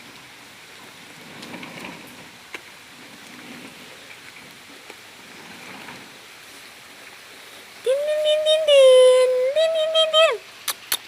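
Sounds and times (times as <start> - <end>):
steady rain falling: 0.0 - 11.0
sharp drip ticks: 10.6 - 11.0.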